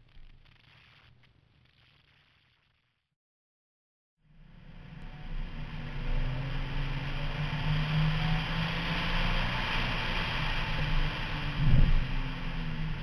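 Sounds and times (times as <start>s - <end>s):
road noise: 4.5s - 13.0s
car engine accelerating: 4.6s - 13.0s.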